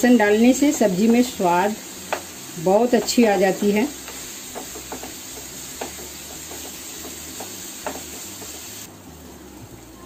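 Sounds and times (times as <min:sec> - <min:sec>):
masala sizzling in a pan: 0:00.0 - 0:10.0
wooden spatula scraping: 0:00.7 - 0:08.9.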